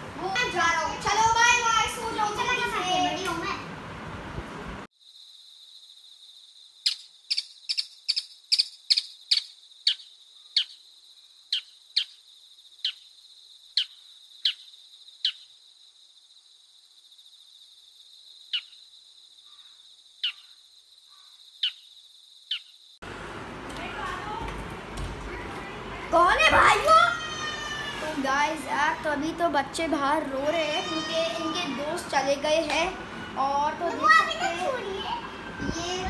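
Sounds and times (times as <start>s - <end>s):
steady cricket trill: 4.9s - 23.1s
sharp falling chirps: 6.8s - 10.8s, 11.5s - 12.2s.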